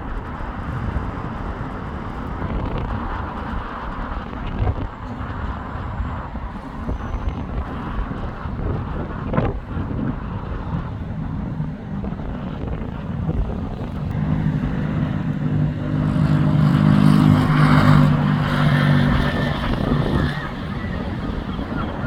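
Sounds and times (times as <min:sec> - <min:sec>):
street traffic: 0:00.0 - 0:22.0
vehicle engine running: 0:10.6 - 0:22.0.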